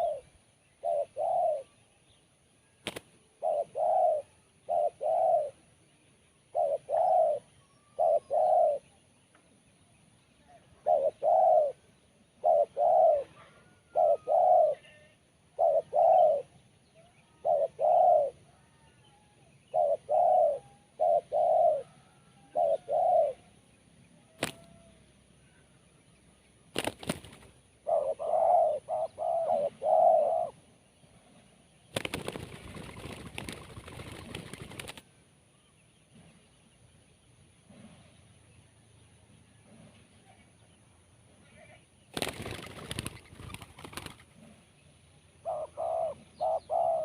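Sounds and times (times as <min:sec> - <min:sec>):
dove cooing: 0:00.0 - 0:01.8, 0:03.4 - 0:05.6, 0:06.5 - 0:08.9, 0:10.5 - 0:16.6, 0:17.4 - 0:19.0, 0:19.7 - 0:23.5, 0:27.8 - 0:30.6, 0:45.4 - 0:47.0.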